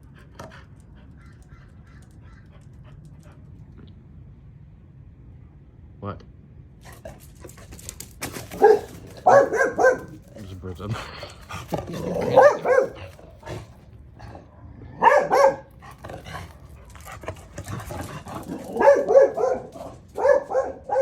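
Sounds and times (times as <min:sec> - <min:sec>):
dog barking: 0:08.5 - 0:10.4, 0:12.0 - 0:13.6, 0:15.0 - 0:15.7, 0:18.4 - 0:21.0.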